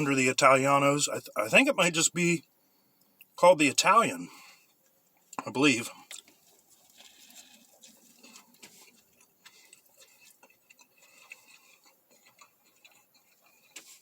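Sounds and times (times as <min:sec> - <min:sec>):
person chewing food: 0:04.4 - 0:05.4, 0:06.0 - 0:14.0.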